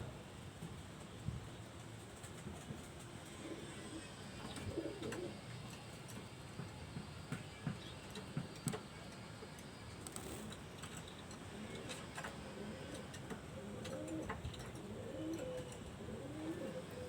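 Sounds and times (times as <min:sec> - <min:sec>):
pigeon cooing softly: 0:03.3 - 0:05.5, 0:11.5 - 0:17.0.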